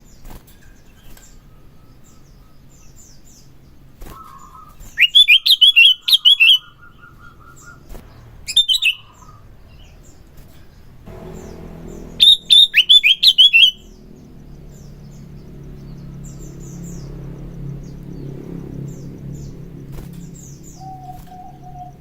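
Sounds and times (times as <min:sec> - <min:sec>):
bulbul chirping: 0:11.1 - 0:17.2.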